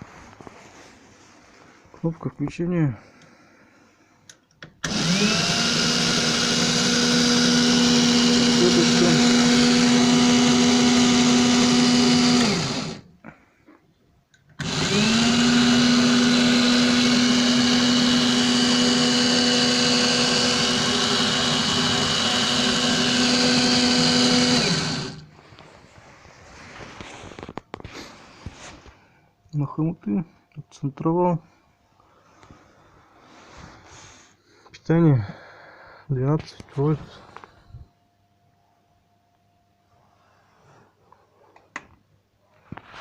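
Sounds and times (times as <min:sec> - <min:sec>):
drill motor whining: 0:04.8 - 0:13.1, 0:14.6 - 0:25.3.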